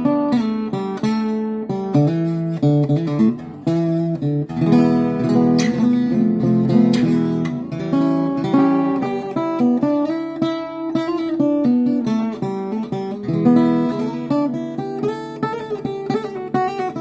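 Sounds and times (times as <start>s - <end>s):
acoustic guitar strumming and picking: 0.0s - 17.0s.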